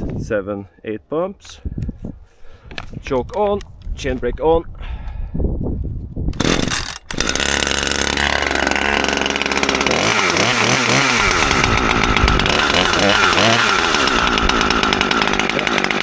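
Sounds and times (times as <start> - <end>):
chainsaw engine revving: 6.4 - 16.0
chainsaw pull cord: 6.4 - 16.0.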